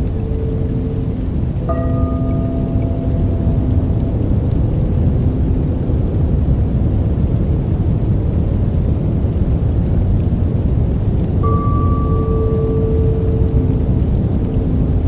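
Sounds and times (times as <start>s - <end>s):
soft sustained tone: 0.0s - 7.6s, 11.4s - 15.0s
deep white noise rushing: 0.0s - 15.0s.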